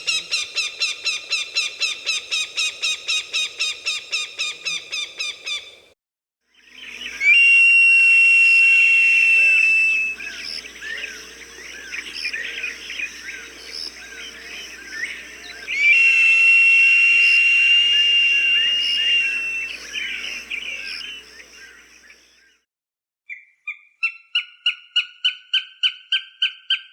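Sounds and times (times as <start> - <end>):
falcon screaming: 7.2 - 11.1, 15.5 - 21.0.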